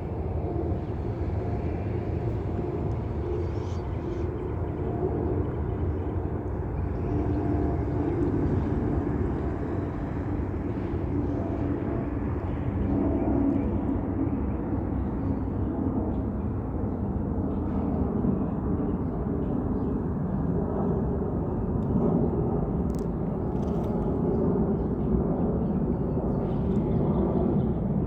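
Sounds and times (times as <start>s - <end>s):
jet engines rumbling: 0.0s - 12.8s.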